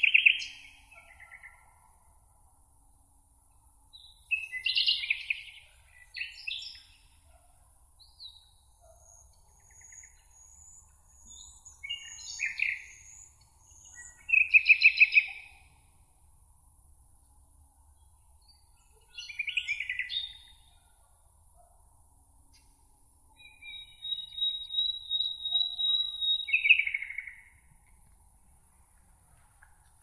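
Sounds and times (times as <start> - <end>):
songbirds warbling: 8.2 - 15.8, 23.4 - 27.6
rapid bird trill: 23.4 - 27.4.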